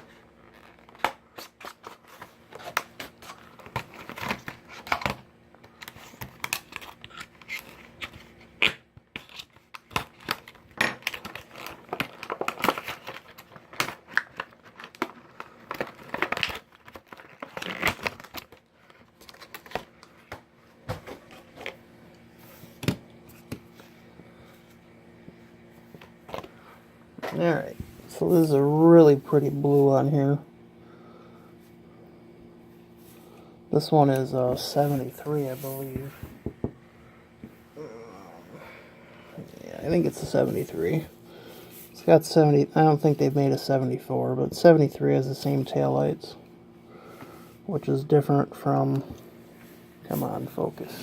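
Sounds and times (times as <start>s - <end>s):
plastic packaging crinkling and tearing: 0.5s - 20.3s.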